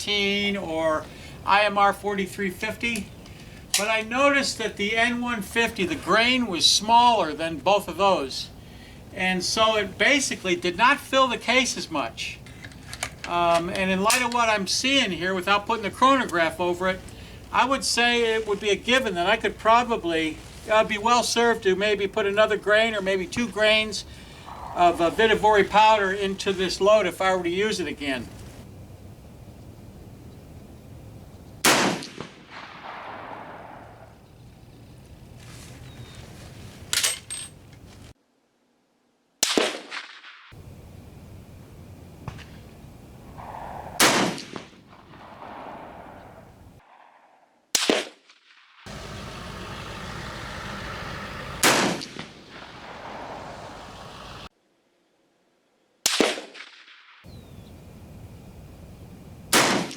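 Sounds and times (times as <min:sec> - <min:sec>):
rifle shots with echo: 0:24.4 - 0:25.8, 0:31.6 - 0:34.3, 0:39.4 - 0:40.4, 0:43.3 - 0:48.9, 0:51.5 - 0:54.1, 0:56.0 - 0:57.2, 0:59.5 - 0:59.9.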